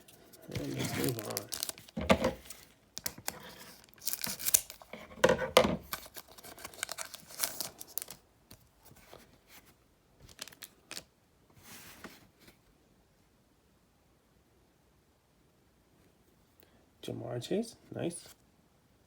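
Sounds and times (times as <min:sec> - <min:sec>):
cards rustling and clicking: 0:00.1 - 0:09.2, 0:10.2 - 0:11.1
wrapper tearing and crinkling: 0:00.4 - 0:05.0, 0:05.8 - 0:08.2, 0:10.2 - 0:11.1.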